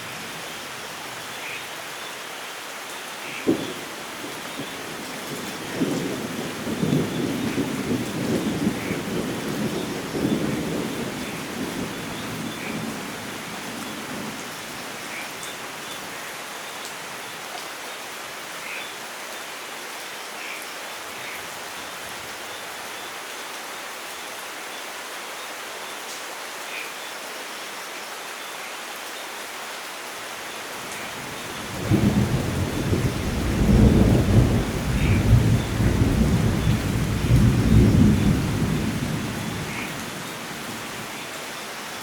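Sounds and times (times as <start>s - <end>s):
steady rain falling: 0.0s - 42.0s
thunder rumble: 31.6s - 39.8s.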